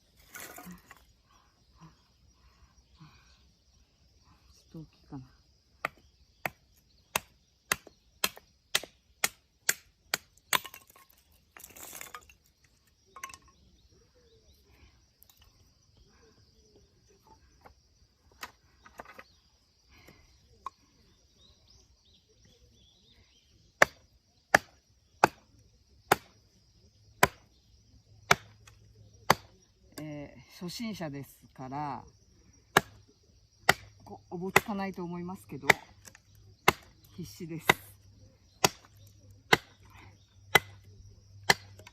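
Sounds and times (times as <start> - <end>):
blade chopping wood: 5.8 - 12.3, 23.8 - 25.5, 26.1 - 26.4, 27.2 - 27.5, 28.3 - 29.5, 32.7 - 33.0, 33.6 - 34.8, 35.7 - 37.0, 38.6 - 39.8, 40.5 - 41.9.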